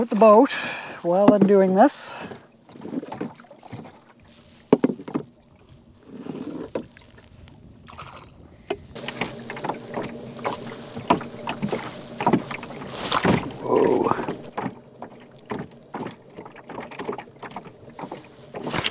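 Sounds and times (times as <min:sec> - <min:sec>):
water splashing: 0:00.0 - 0:18.9
knocks against canoe hull: 0:04.7 - 0:05.3.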